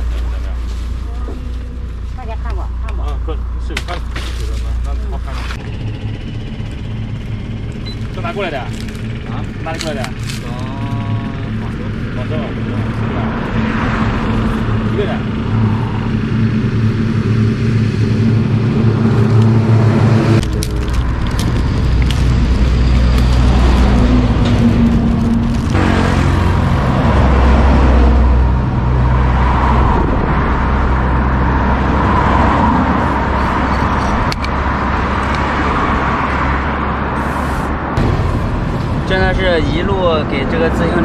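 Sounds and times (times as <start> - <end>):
vehicle engine running: 0.0 - 41.0.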